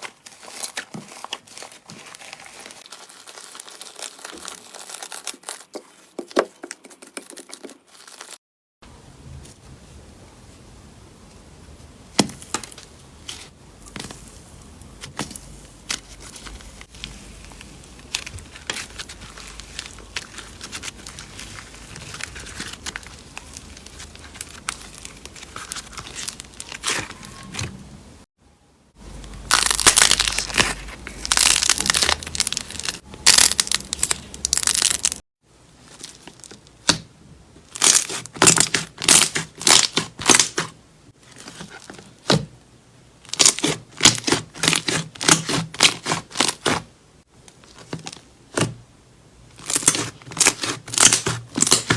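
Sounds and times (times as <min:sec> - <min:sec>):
slime crackling and popping: 0:29.4 - 0:35.2, 0:37.7 - 0:40.7, 0:43.3 - 0:46.7, 0:49.6 - 0:51.9.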